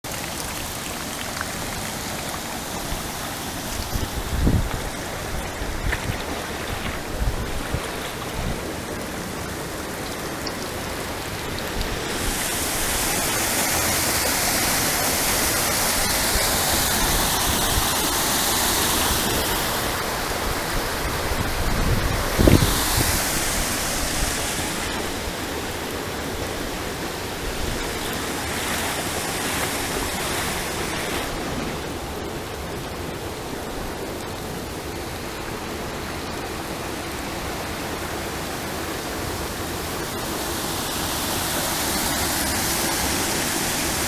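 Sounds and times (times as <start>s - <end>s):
floodwater rushing in river: 0.0s - 44.0s.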